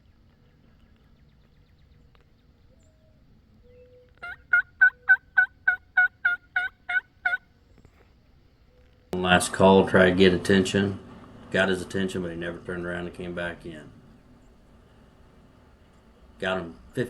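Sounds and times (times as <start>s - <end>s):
turkey call yelps: 3.7s - 7.5s.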